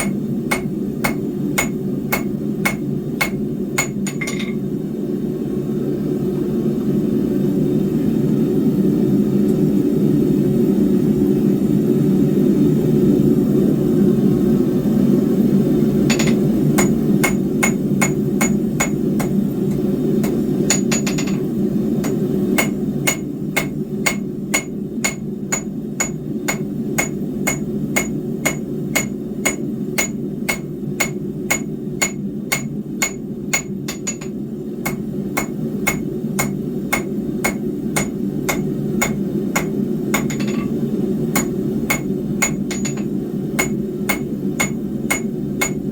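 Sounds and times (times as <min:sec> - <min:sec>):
hammer striking steel on anvil: 0:00.0 - 0:04.6, 0:16.1 - 0:45.9
low roar of forge: 0:00.0 - 0:05.8, 0:14.3 - 0:45.9.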